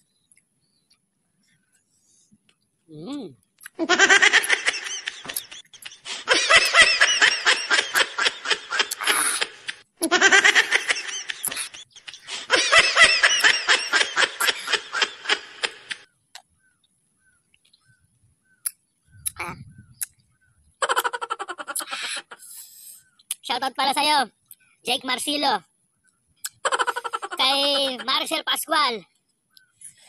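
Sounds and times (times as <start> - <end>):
high-pitched laughter: 3.8 - 16.0, 20.8 - 22.4, 26.5 - 28.2.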